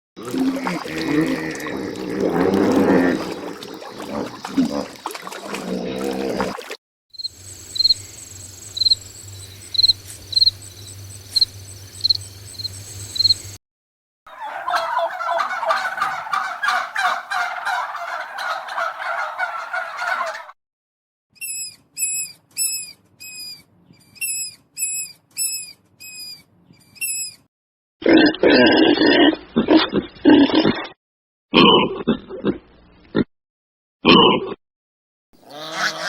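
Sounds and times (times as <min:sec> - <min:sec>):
rough lower animal calls: 0:14.3 - 0:20.6, 0:35.4 - 0:36.0
rapid rattling animal call: 0:35.4 - 0:36.0.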